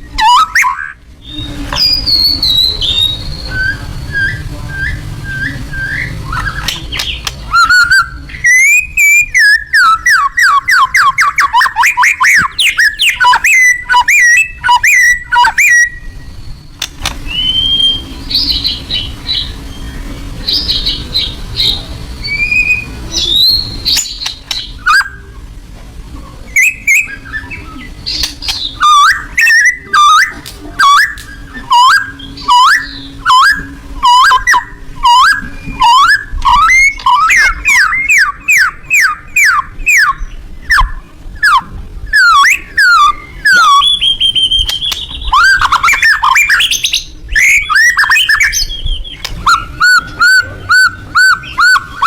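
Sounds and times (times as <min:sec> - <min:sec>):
songbird singing whistled phrases: 0:00.0 - 0:25.3, 0:26.5 - 0:52.0.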